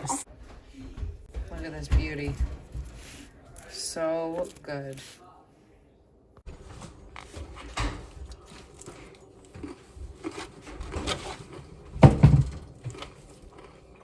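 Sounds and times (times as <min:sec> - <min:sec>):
person chewing crunchy salad: 0:08.3 - 0:11.9, 0:12.7 - 0:14.0.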